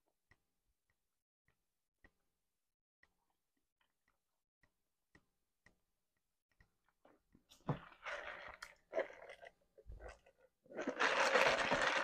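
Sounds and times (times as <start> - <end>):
ice rattling in drink cup: 7.9 - 12.0.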